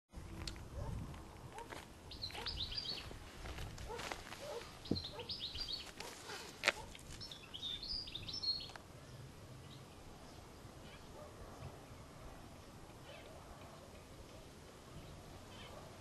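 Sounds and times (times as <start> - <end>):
faint outdoor background noise: 0.1 - 16.0
small birds chirping: 2.1 - 3.2, 4.4 - 16.0.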